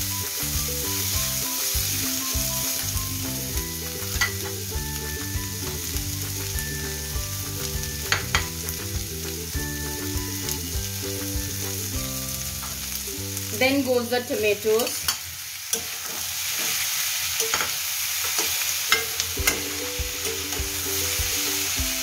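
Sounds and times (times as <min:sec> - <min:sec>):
onions frying in oil: 0:00.0 - 0:22.0
spatula clinking against pan: 0:18.4 - 0:20.5.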